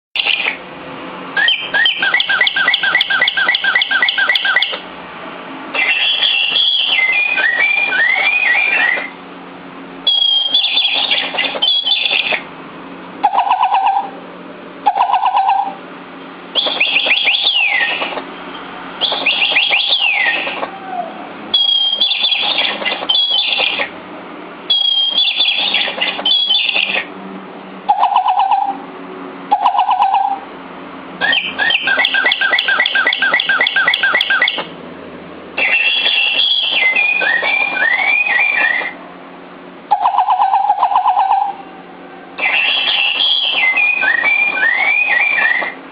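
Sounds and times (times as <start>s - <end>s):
toy bird chirping and whistling: 0.2s - 0.6s, 1.4s - 4.8s, 5.8s - 9.2s, 10.0s - 12.4s, 13.2s - 14.1s, 14.9s - 15.8s, 16.6s - 18.2s, 19.0s - 20.7s, 21.5s - 23.9s, 24.7s - 27.1s, 27.9s - 28.8s, 29.5s - 30.4s, 31.2s - 34.7s, 35.6s - 39.0s, 39.9s - 41.6s, 42.4s - 45.8s.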